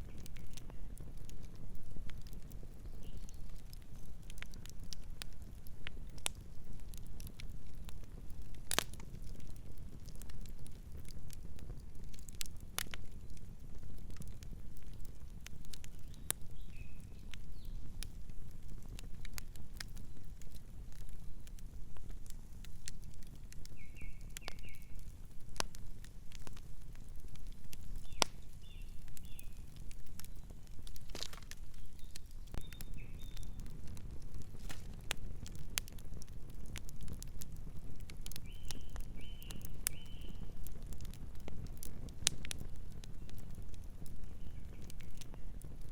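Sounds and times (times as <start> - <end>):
campfire crackling: 0.0 - 45.9
bird chirping: 31.8 - 33.6.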